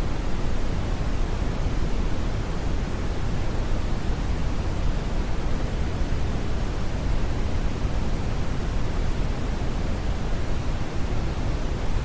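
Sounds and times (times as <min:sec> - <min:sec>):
deep brown noise hiss: 0:00.0 - 0:12.0.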